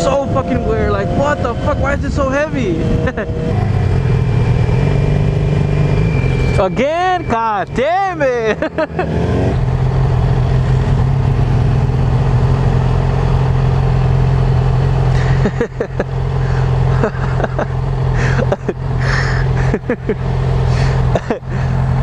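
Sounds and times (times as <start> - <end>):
wind noise on microphone: 0.0 - 4.7
motorcycle engine running: 0.0 - 22.0.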